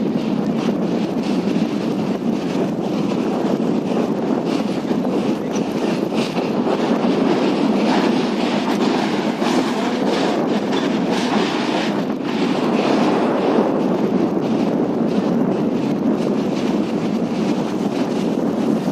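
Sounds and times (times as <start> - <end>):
clickety-clack of train wheels: 0.0 - 18.9
train wheels rumbling on rails: 0.0 - 18.9.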